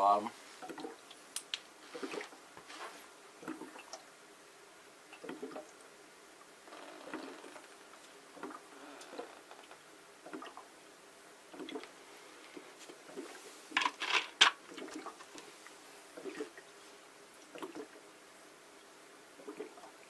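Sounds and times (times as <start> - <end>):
water glugging and dripping: 0.6 - 2.5, 3.4 - 4.2, 5.0 - 10.8, 11.4 - 13.4, 14.6 - 18.1, 18.8 - 20.0.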